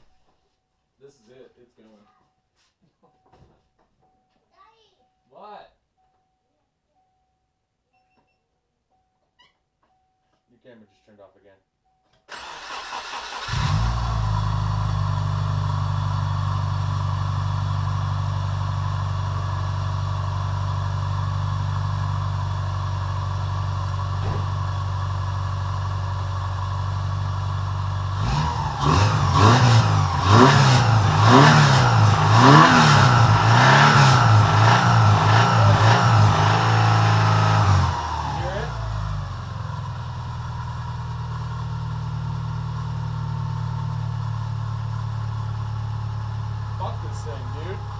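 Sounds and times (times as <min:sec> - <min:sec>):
car engine idling and revving: 0:12.3 - 0:47.9.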